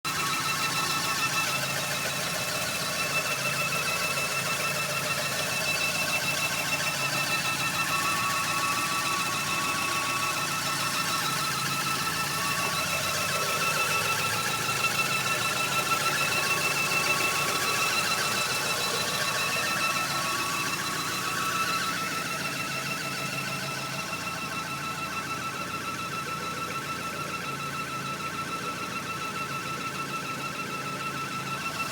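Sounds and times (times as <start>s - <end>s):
car engine running: 0.0s - 31.9s
high-pitched engine whine: 0.1s - 31.9s.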